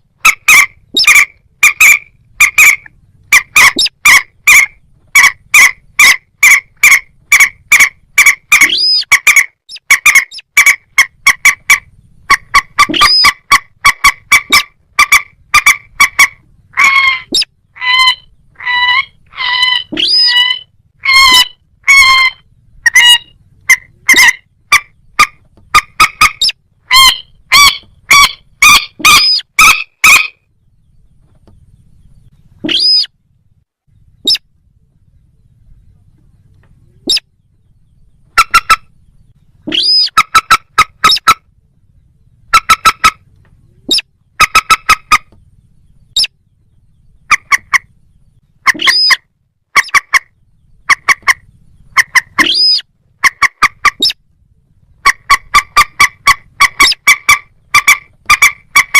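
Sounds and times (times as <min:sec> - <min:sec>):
waterbird harsh clucking calls: 0:00.2 - 0:30.4, 0:32.6 - 0:33.1, 0:34.2 - 0:34.4, 0:37.0 - 0:37.3, 0:38.3 - 0:39.0, 0:39.6 - 0:41.5, 0:42.4 - 0:45.4, 0:47.2 - 0:47.9, 0:48.6 - 0:54.2, 0:55.0 - 0:58.9
upward-sweeping bird squawks: 0:00.2 - 0:30.5, 0:32.6 - 0:33.1, 0:34.2 - 0:34.5, 0:37.0 - 0:37.3, 0:38.3 - 0:38.9, 0:39.6 - 0:41.4, 0:43.8 - 0:45.3, 0:46.1 - 0:46.4, 0:48.6 - 0:54.2, 0:55.0 - 0:58.9.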